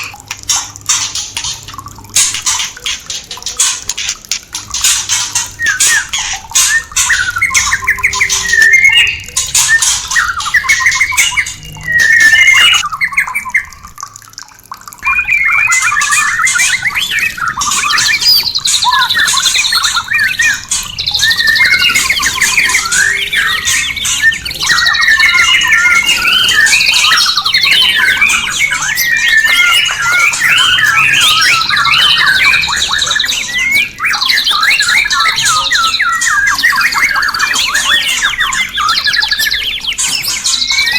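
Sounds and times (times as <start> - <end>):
running water hiss: 0.0 - 14.0
bird singing with high trills: 4.8 - 13.9, 15.0 - 40.9.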